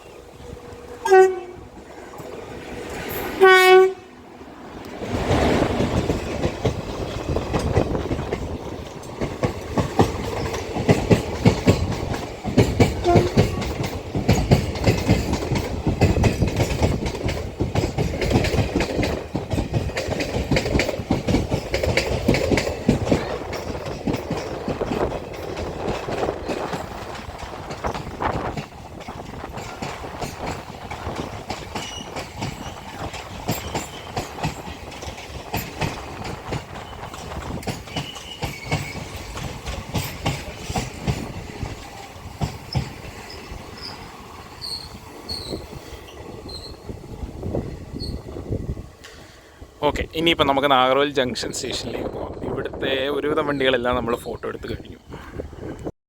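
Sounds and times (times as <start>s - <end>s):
train horn: 0.3s - 2.2s, 3.3s - 4.2s, 13.0s - 13.8s
train wheels clacking over rail joints: 4.8s - 48.3s.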